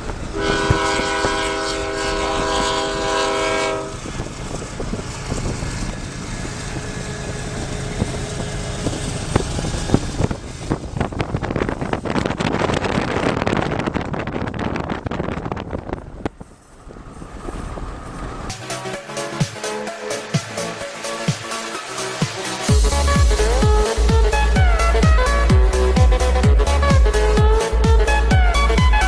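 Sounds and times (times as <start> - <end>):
locomotive horn: 0.0 - 10.8, 16.8 - 29.0
wind buffeting microphone: 0.0 - 19.4
freight train rumbling past: 0.0 - 29.0.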